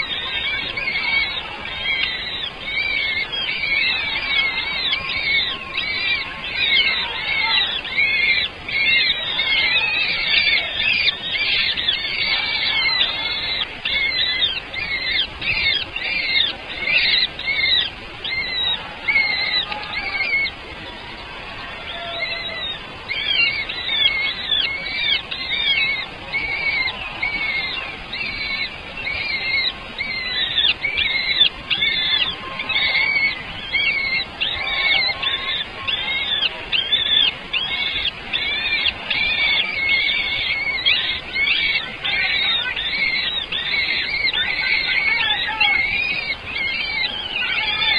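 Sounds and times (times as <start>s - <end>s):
baby birds chirping: 0.0s - 20.7s, 21.9s - 47.9s.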